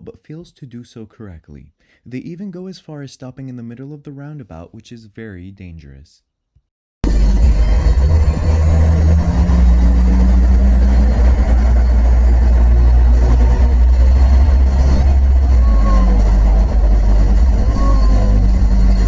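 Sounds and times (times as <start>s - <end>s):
vehicle engine and road rumble: 7.0s - 19.0s.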